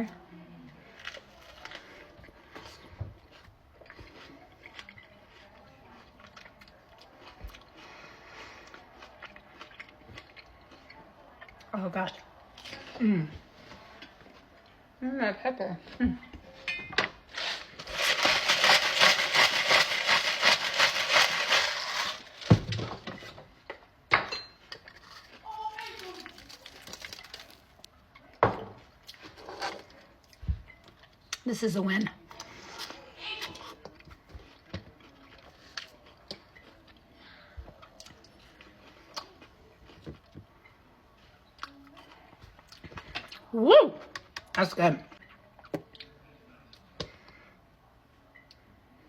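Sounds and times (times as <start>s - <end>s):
person chewing food: 1.0s - 11.7s, 33.6s - 40.8s
crunchy food chewing: 17.3s - 22.5s, 24.8s - 28.3s.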